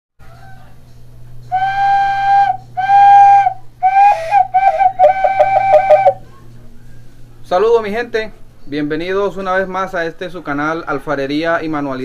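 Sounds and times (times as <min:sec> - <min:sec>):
clay whistle notes and trill: 0:01.5 - 0:06.2.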